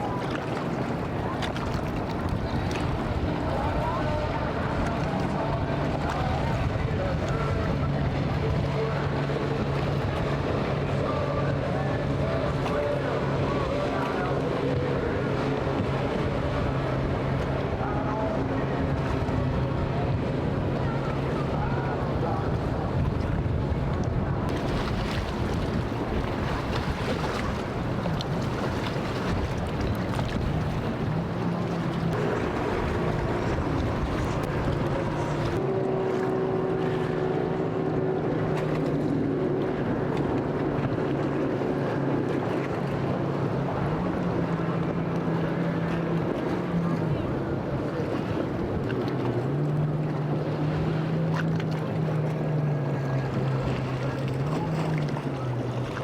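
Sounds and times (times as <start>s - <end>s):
motorboat engine: 0.0s - 56.0s
water noise: 0.0s - 56.0s
wind: 0.0s - 56.0s
wind noise: 14.8s - 35.6s.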